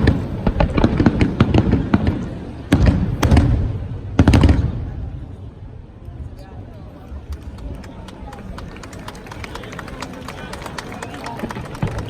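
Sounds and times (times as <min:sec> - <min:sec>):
fireworks cracking bangs: 0:00.0 - 0:05.4, 0:09.3 - 0:12.0.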